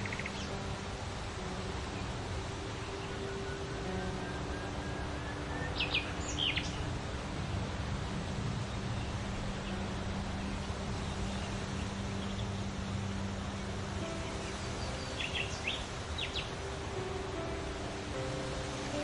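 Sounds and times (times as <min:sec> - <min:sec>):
bird chirping: 0:00.0 - 0:00.6, 0:02.8 - 0:06.9, 0:14.0 - 0:16.6.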